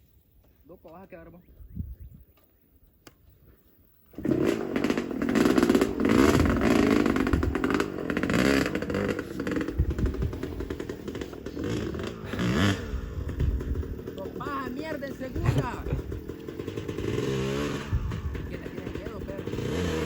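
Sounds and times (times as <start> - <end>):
motorcycle engine revving: 4.1 - 20.0
clatter and scraping: 4.2 - 20.0.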